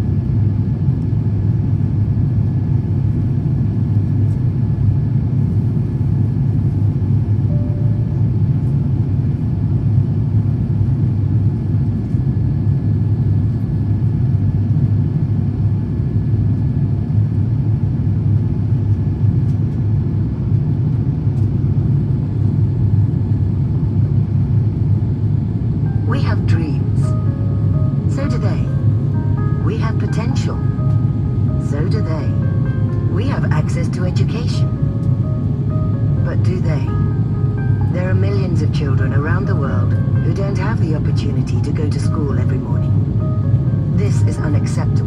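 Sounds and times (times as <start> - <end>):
aircraft cabin engine rumble: 0.0 - 45.0
faint high tone: 7.5 - 8.2, 25.9 - 40.8.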